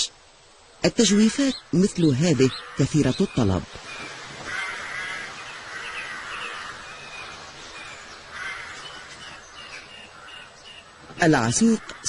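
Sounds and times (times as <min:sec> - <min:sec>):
harsh rasping bird calls: 0:00.8 - 0:12.0
high bird chirps: 0:01.1 - 0:04.3.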